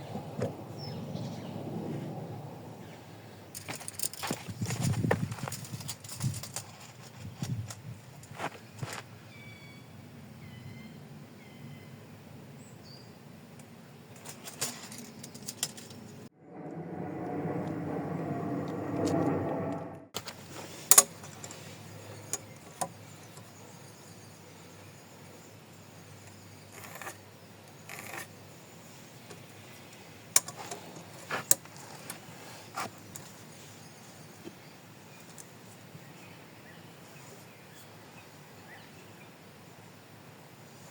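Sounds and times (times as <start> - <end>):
low steady background noise: 20.2 - 40.9.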